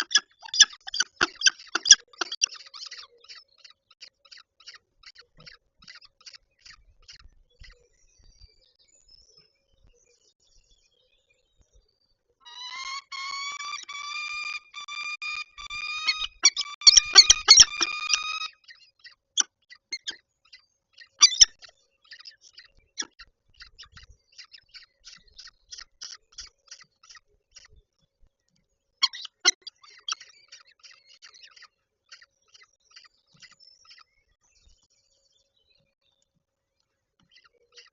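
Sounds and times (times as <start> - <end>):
falcon calling: 0.0 - 2.6, 12.5 - 18.6.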